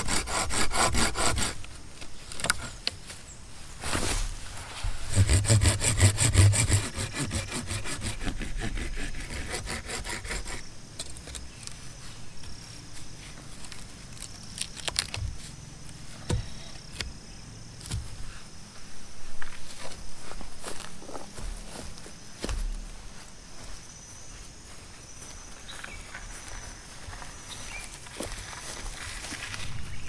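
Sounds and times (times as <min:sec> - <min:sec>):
hand saw cutting wood: 0:00.0 - 0:01.8, 0:04.8 - 0:10.7
knocks and clicks of wood: 0:16.2 - 0:17.2.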